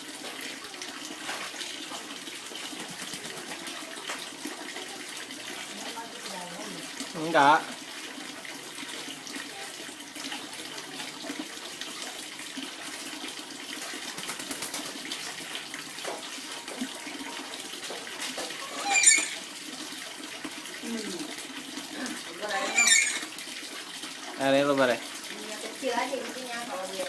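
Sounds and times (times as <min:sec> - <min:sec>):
tap water running and splashing: 0:00.0 - 0:27.0
parrot squawk: 0:18.6 - 0:19.5, 0:22.5 - 0:23.3.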